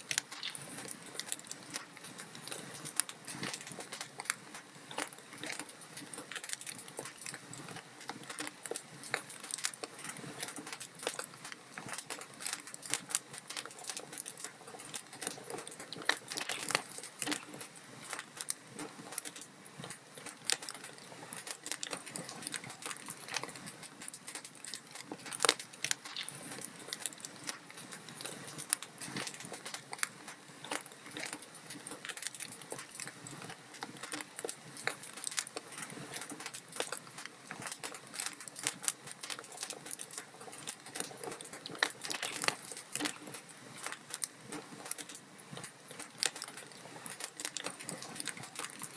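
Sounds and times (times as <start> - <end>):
log fire crackling: 0.0 - 48.9.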